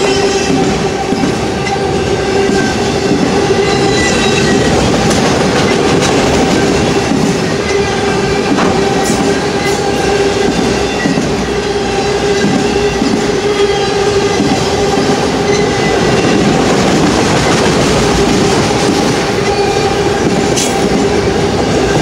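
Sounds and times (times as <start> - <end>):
wheels squealing: 0.0 - 5.0
train wheels rumbling on rail: 0.0 - 22.0.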